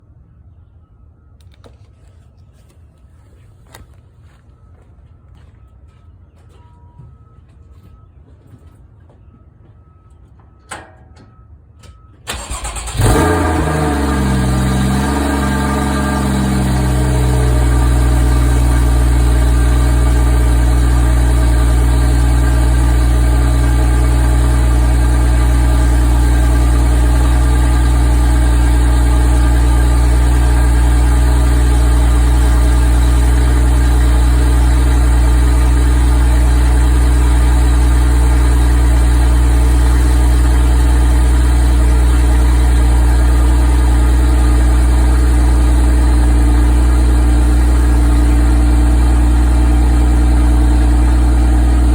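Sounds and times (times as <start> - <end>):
car engine idling: 12.3 - 51.9.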